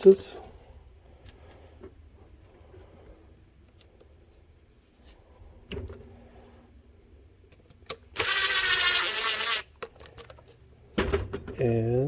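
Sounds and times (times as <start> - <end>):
small electric motor whirring: 8.1 - 9.8.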